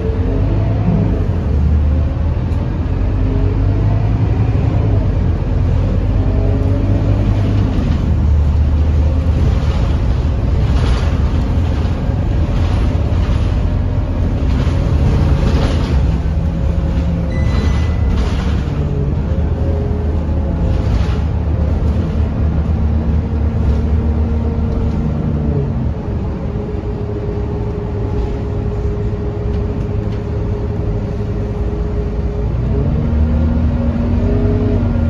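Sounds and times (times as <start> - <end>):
bus diesel engine: 0.0 - 35.0.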